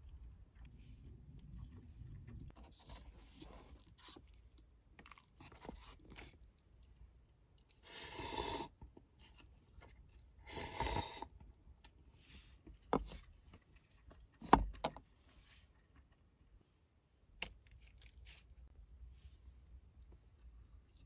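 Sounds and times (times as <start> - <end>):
person chewing noodles: 3.7 - 6.6.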